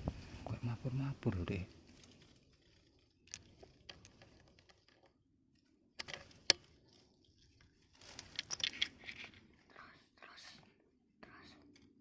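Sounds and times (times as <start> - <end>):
rustling handling noise: 6.0 - 9.8.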